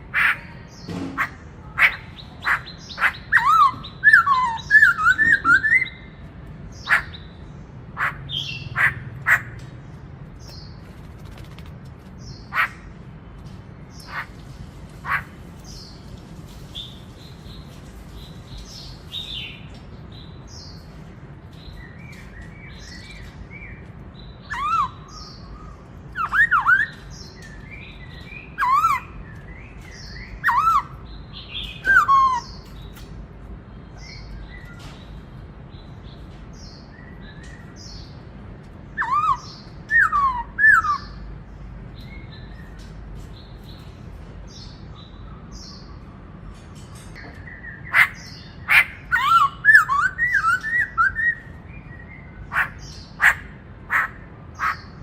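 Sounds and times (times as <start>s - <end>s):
bird whistled song phrases: 2.4s - 6.1s, 24.4s - 27.1s, 31.6s - 32.6s, 39.0s - 41.2s, 48.7s - 52.0s.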